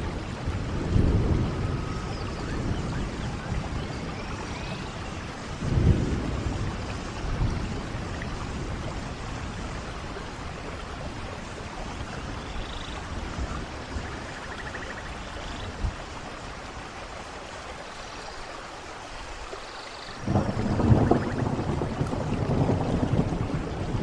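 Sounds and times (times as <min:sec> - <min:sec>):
thunder rumbling: 0:00.0 - 0:12.4, 0:20.2 - 0:24.0
steady rain: 0:00.0 - 0:24.0.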